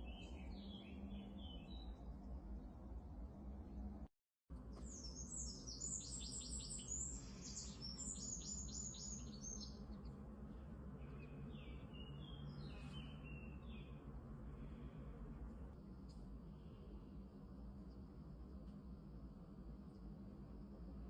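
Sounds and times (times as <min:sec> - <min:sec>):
songbird singing: 0:00.0 - 0:02.1, 0:04.6 - 0:14.1
faint low rumble: 0:00.0 - 0:21.0.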